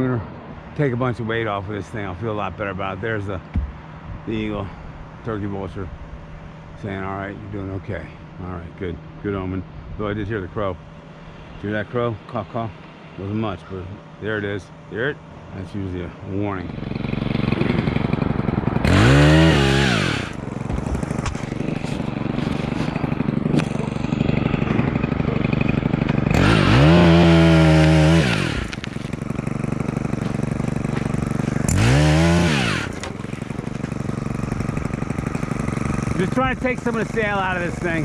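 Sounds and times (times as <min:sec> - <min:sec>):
pole saw engine revving: 0:16.6 - 0:38.0.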